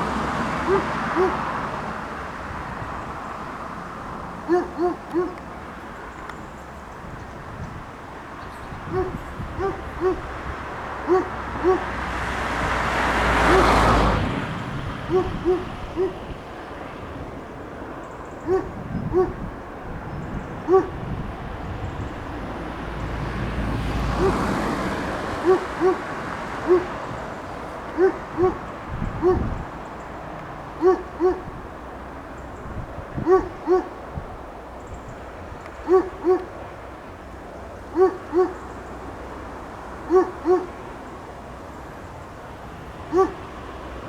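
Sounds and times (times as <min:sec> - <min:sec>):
bird hooting: 0:00.7 - 0:01.4, 0:04.5 - 0:05.4, 0:08.9 - 0:10.3, 0:11.1 - 0:11.9, 0:15.1 - 0:16.2, 0:18.4 - 0:19.4, 0:20.7 - 0:21.0, 0:25.4 - 0:27.0, 0:28.0 - 0:29.6, 0:30.8 - 0:31.5, 0:33.2 - 0:33.9, 0:35.8 - 0:36.5, 0:37.9 - 0:38.7, 0:40.1 - 0:40.8, 0:43.1 - 0:43.4.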